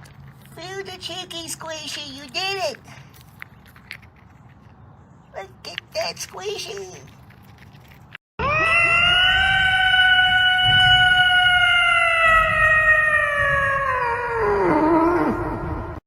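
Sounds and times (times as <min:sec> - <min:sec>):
long howl: 0:08.4 - 0:16.0.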